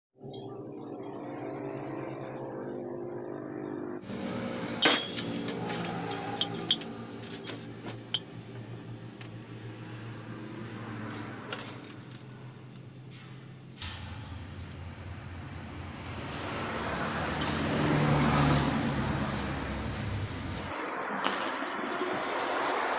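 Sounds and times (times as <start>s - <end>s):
sharp metallic clinks: 4.8s - 8.4s.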